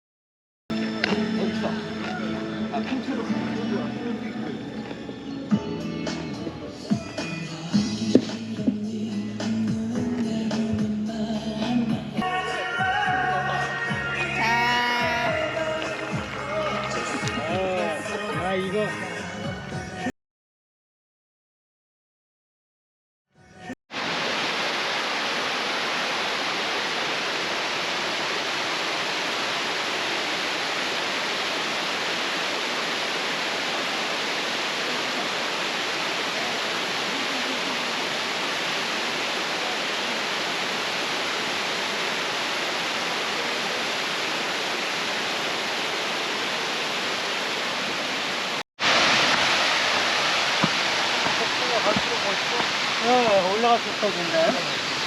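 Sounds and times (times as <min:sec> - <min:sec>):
rushing water: 0:06.7 - 0:18.5, 0:23.9 - 0:55.0.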